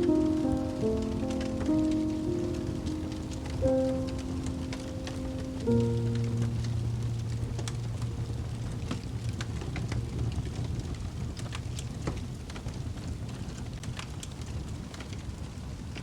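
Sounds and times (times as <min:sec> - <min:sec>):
low held music note: 0:00.0 - 0:10.2
low rumble and hiss: 0:00.0 - 0:14.0
fireplace crackling and popping: 0:00.0 - 0:16.0.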